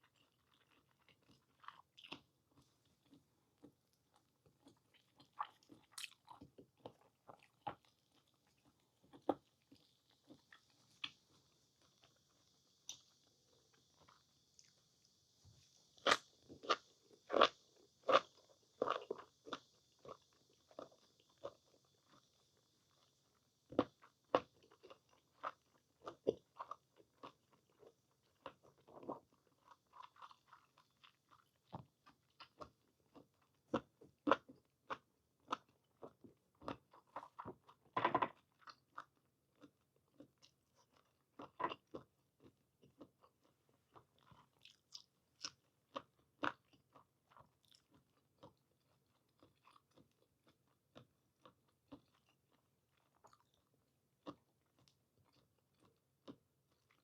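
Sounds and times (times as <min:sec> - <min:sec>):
wet chewing: 0:00.0 - 0:11.3.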